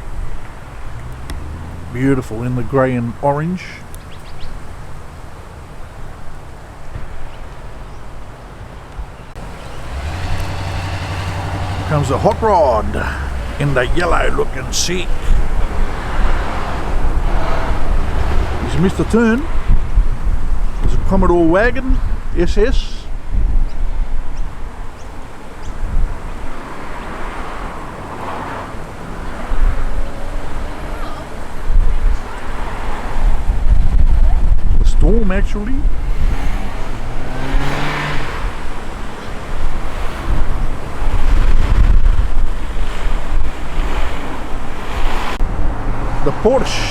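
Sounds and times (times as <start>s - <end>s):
rustle: 0.0s - 18.8s
faint low engine rumble: 0.0s - 26.4s
car engine arriving: 0.0s - 46.9s
wind: 0.0s - 46.9s.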